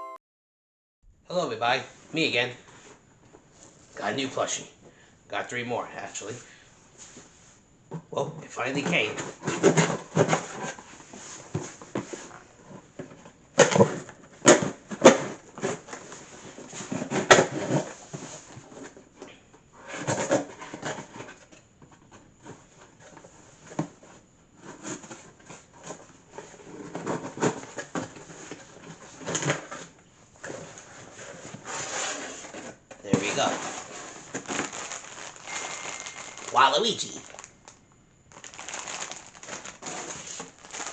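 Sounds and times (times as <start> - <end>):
package rustling and scraping: 19.8 - 40.9.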